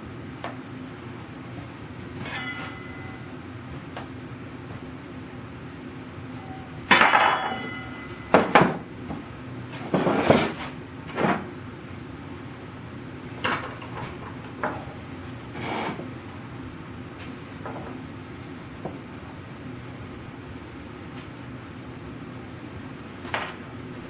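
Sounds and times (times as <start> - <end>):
metal objects clattering: 2.2 - 3.3, 6.4 - 8.8.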